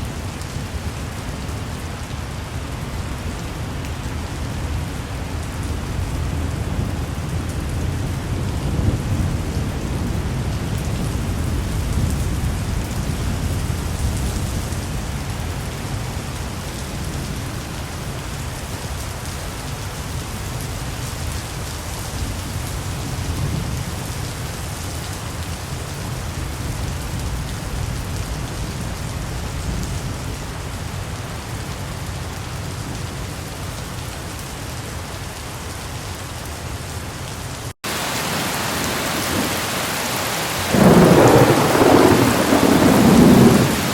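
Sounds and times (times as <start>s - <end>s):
steady rain falling: 0.0s - 43.9s
distant thunder rumble: 40.6s - 43.9s.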